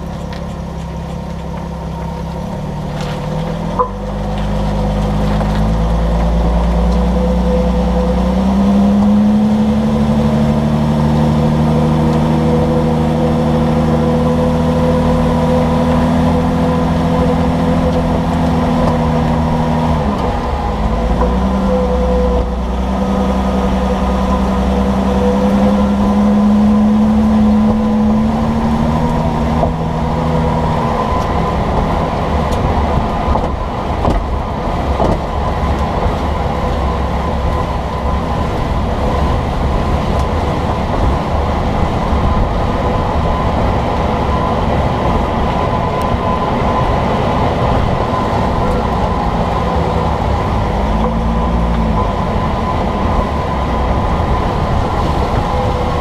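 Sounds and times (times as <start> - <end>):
engine hum: 0.0 - 56.0
road rumble under moving vehicle: 0.0 - 56.0.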